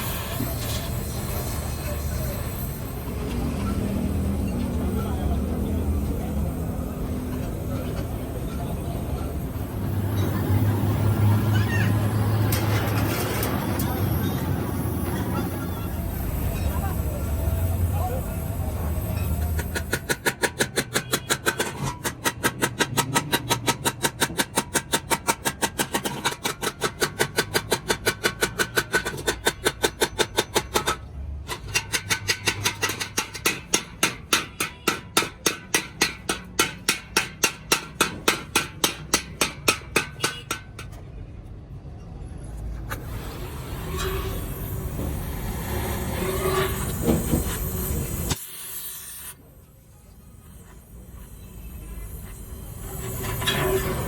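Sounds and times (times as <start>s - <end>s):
noisy work sound: 0.0s - 54.0s
hammer striking sheet steel: 18.9s - 41.1s, 42.9s - 49.4s, 50.1s - 54.0s.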